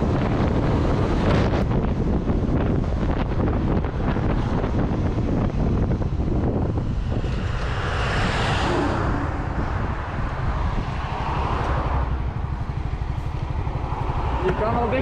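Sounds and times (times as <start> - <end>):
motorcycle engine and road rumble: 0.0 - 15.0
wind noise on microphone: 0.0 - 15.0
rushing noise: 3.4 - 15.0.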